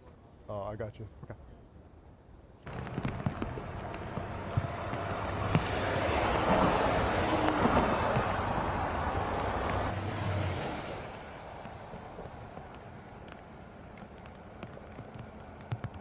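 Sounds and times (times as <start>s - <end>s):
vehicle engine passing by: 2.7s - 12.2s.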